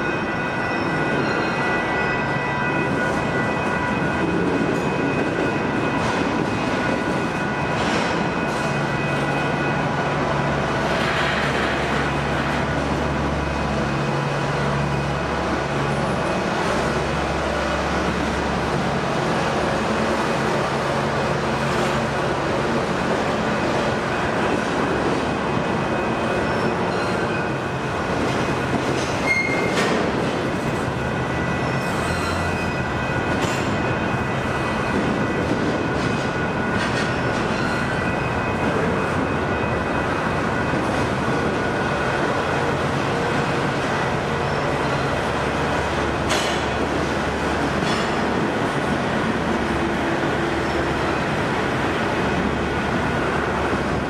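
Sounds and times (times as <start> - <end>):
steel wheels rumbling on rail: 0.0 - 54.0
wheels squealing: 29.2 - 29.8.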